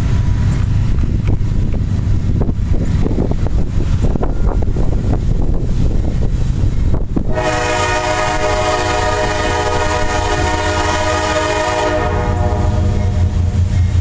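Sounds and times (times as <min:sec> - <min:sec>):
low rumble: 0:00.0 - 0:14.0
wind on microphone: 0:00.0 - 0:14.0
locomotive air horn: 0:07.3 - 0:14.0.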